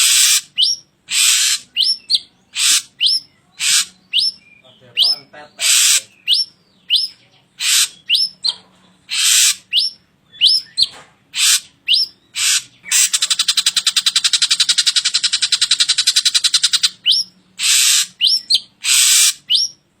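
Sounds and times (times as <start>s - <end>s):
harsh raspy bird calls: 0.0s - 20.0s
bird whistled notes: 11.9s - 19.8s
fast bird rattle: 12.4s - 16.9s.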